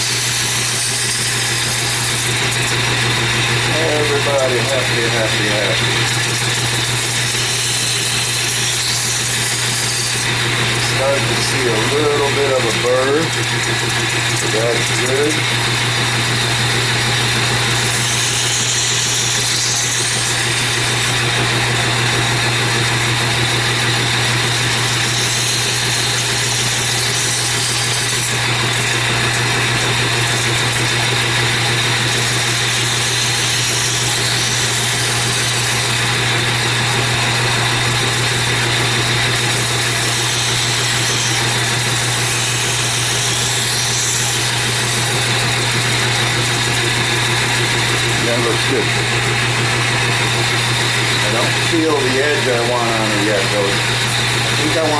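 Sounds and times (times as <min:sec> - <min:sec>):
steel hissing on abrasive belt: 0:00.0 - 0:15.6, 0:17.5 - 0:21.2, 0:37.9 - 0:49.0, 0:50.2 - 0:54.9
belt grinder motor hum: 0:00.0 - 0:54.9.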